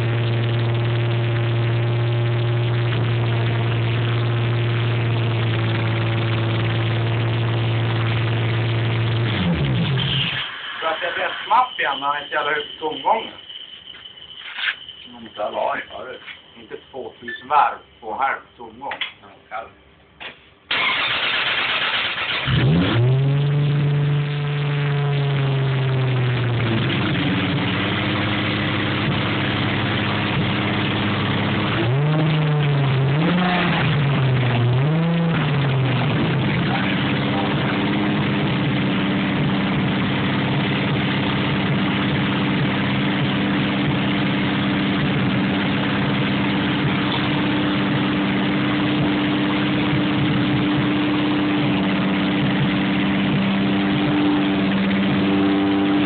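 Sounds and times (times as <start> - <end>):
car engine revving: 0.0 - 13.7, 20.7 - 56.0
car engine idling: 0.0 - 17.6, 20.7 - 56.0
car engine cranking: 20.7 - 55.8.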